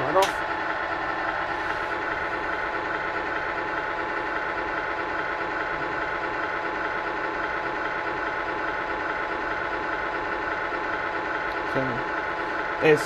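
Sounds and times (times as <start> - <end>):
simulated diesel engine idling: 0.0 - 13.0.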